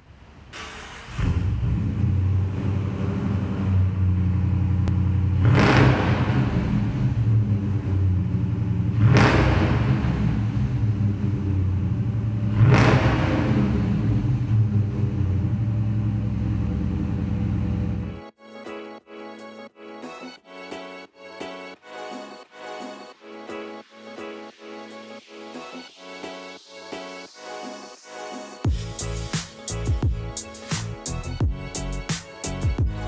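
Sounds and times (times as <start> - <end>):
car engine idling and revving: 0.6 - 18.2.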